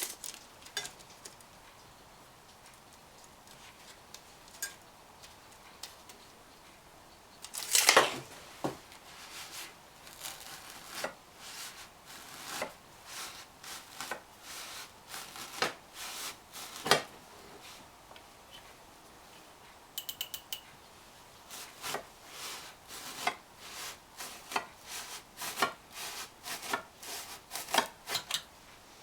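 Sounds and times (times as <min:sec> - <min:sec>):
knife cutting foam: 0:09.1 - 0:17.1, 0:21.5 - 0:28.3.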